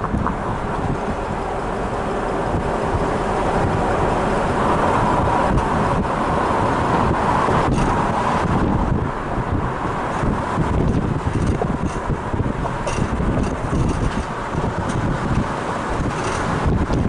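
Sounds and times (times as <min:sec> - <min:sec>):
car road and engine noise: 0:00.0 - 0:17.0
wind buffeting microphone: 0:00.0 - 0:17.0.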